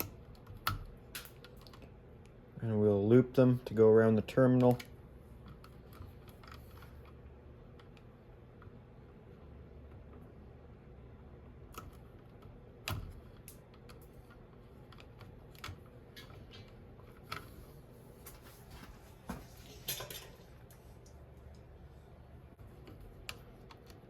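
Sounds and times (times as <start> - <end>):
tools and wire clicking: 0.0 - 2.4, 4.3 - 8.8, 11.7 - 17.6, 22.6 - 24.0
low steady hum: 0.0 - 24.0.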